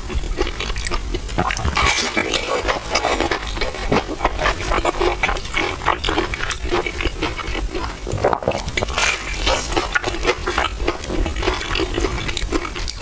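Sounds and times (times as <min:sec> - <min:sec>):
wet slurping and chewing: 0:00.0 - 0:13.0
mouth clicks and smacks: 0:07.6 - 0:10.1.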